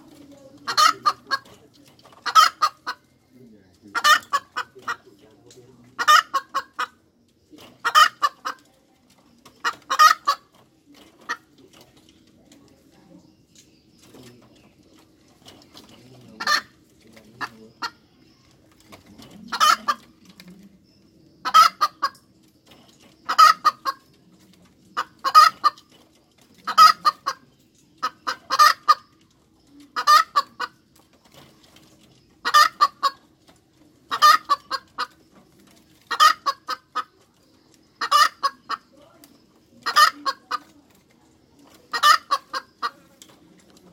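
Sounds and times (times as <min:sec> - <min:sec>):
hen cackling: 0:00.0 - 0:01.6, 0:02.2 - 0:03.1, 0:03.8 - 0:05.2, 0:05.9 - 0:07.1, 0:07.7 - 0:08.6, 0:09.4 - 0:10.5, 0:16.3 - 0:16.8, 0:19.1 - 0:20.3, 0:21.4 - 0:22.3, 0:23.2 - 0:24.1, 0:25.0 - 0:25.9, 0:26.6 - 0:29.2, 0:29.8 - 0:30.8, 0:32.4 - 0:33.3, 0:34.1 - 0:35.2, 0:36.0 - 0:40.8, 0:41.6 - 0:43.1.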